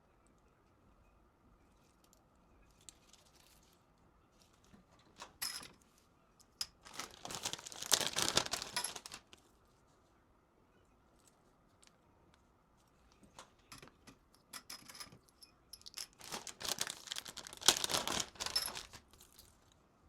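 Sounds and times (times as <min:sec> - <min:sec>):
packaging tearing and crinkling: 0:06.8 - 0:09.4, 0:16.1 - 0:19.6.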